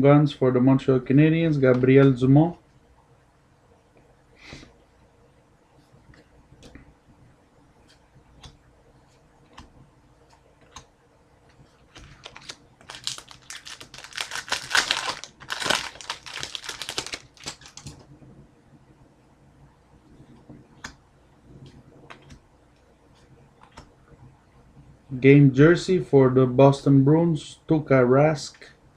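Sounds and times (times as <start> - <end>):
card packs crinkling: 11.9 - 18.0.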